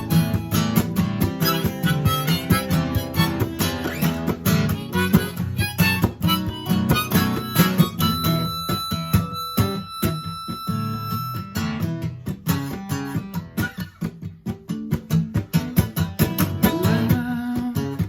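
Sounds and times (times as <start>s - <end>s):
harmonica playing: 0.0s - 12.2s
acoustic guitar strumming: 0.0s - 18.0s.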